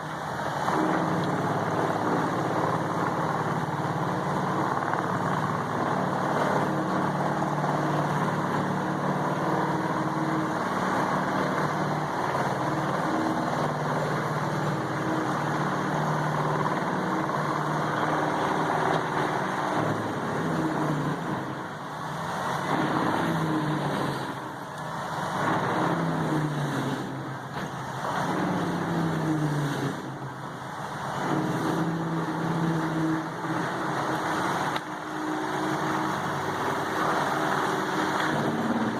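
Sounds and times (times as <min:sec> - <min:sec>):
diesel engine bogging down: 0:00.0 - 0:38.9.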